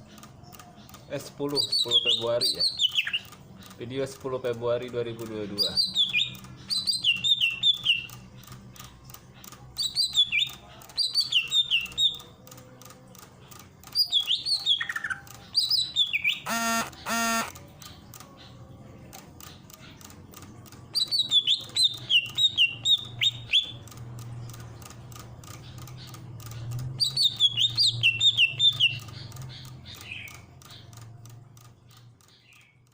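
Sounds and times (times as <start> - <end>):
bird chirping song: 0.0 - 32.9
harsh two-note bird call: 16.4 - 17.6.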